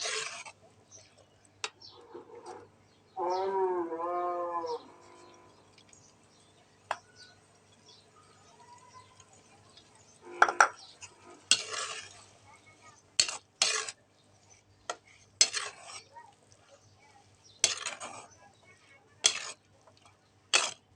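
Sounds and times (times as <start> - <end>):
spoon scraping and clinking in pot: 0.0 - 0.6, 10.4 - 12.4, 13.2 - 16.1, 17.6 - 18.3, 19.2 - 19.7, 20.5 - 20.8.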